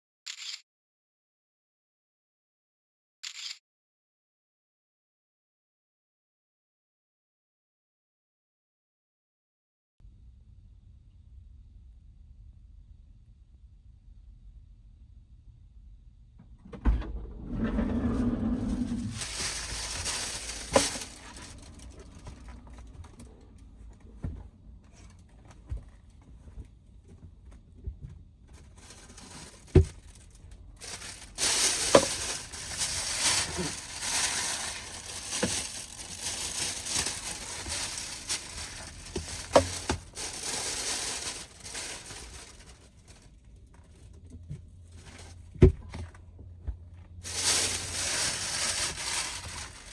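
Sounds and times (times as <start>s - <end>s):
rustling and crinkling: 17.1s - 49.9s.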